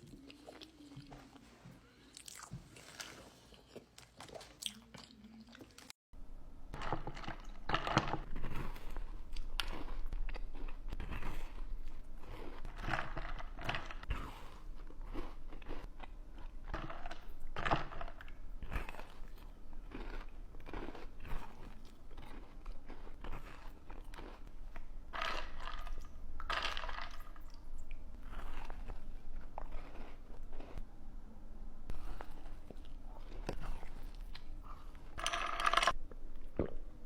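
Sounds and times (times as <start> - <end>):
person chewing crunchy food: 2.1 - 5.9, 6.7 - 30.8.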